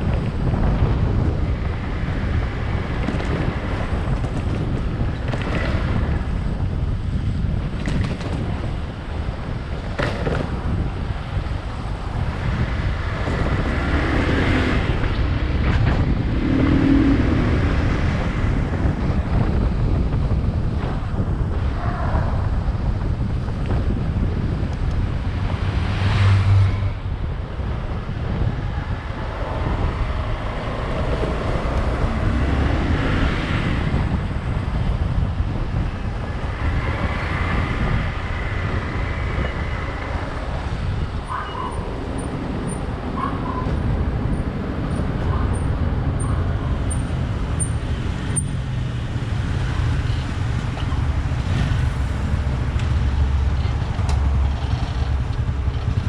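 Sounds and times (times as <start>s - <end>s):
motorcycle engine and road rumble: 0.0s - 56.0s.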